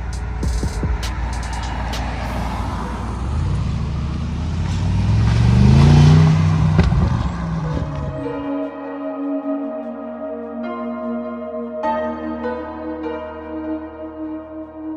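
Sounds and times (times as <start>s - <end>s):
exhaust cracks: 0.0s - 8.3s
car engine revving: 0.0s - 8.4s.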